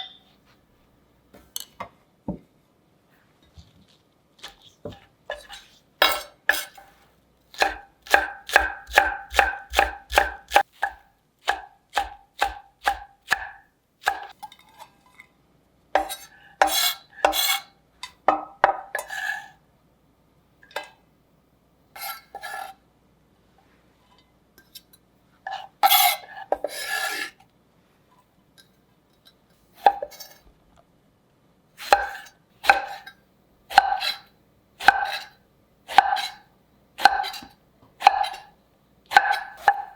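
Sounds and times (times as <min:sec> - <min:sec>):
knife scraping: 0:04.4 - 0:06.9, 0:16.0 - 0:17.7, 0:22.0 - 0:22.8, 0:25.5 - 0:27.4, 0:31.8 - 0:36.4, 0:37.0 - 0:38.5
knife chopping on cutting board: 0:07.6 - 0:14.3, 0:31.8 - 0:33.1, 0:33.7 - 0:34.2, 0:34.8 - 0:35.3, 0:35.9 - 0:36.4, 0:37.0 - 0:38.5, 0:39.1 - 0:39.9.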